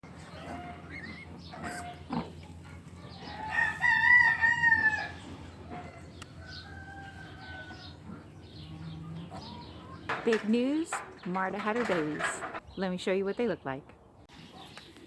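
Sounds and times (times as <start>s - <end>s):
rooster crowing: 3.1s - 9.9s.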